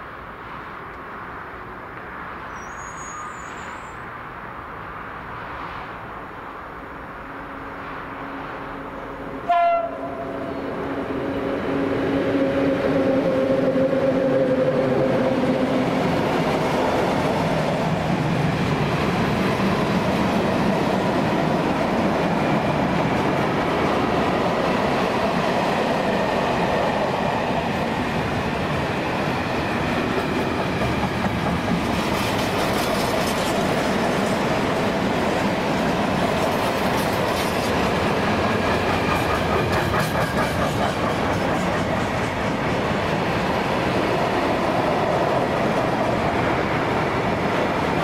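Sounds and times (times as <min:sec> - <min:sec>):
train wheels rumbling on rails: 0:08.0 - 0:48.0
train horn: 0:09.4 - 0:11.0, 0:12.2 - 0:15.5.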